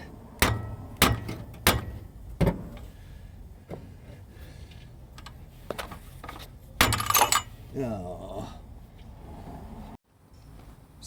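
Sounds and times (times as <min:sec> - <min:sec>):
rock hammering on metal bolt: 0:00.4 - 0:02.9, 0:06.4 - 0:07.6.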